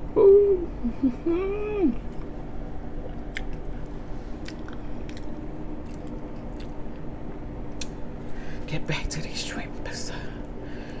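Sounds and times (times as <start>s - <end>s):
faint steady hum: 0.0s - 11.0s
person chewing food: 3.0s - 7.2s.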